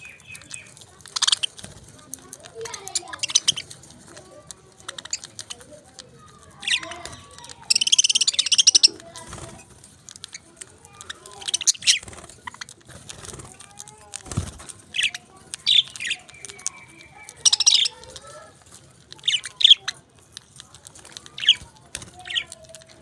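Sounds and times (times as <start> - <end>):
parakeets chirping and squawking: 0.0 - 23.0.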